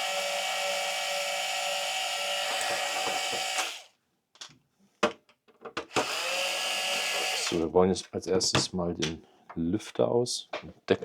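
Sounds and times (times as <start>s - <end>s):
power tool motor whining: 0.0s - 3.9s, 5.9s - 7.6s.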